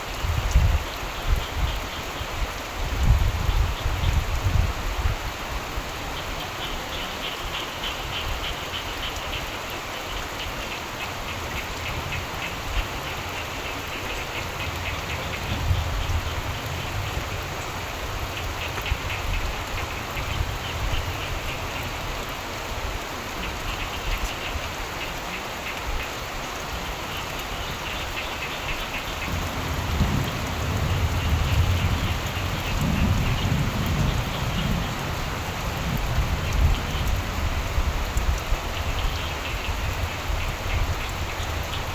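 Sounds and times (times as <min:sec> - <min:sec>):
steady rain: 0:00.0 - 0:41.9
frogs trilling: 0:06.2 - 0:22.3, 0:23.3 - 0:37.8
thunder rumbling: 0:29.2 - 0:38.0.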